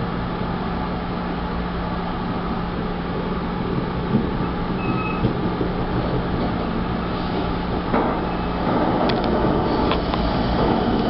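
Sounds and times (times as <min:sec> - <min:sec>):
passenger train rumbling: 0:00.0 - 0:11.0
wheels clicking and knocking: 0:03.7 - 0:06.8, 0:07.4 - 0:11.0.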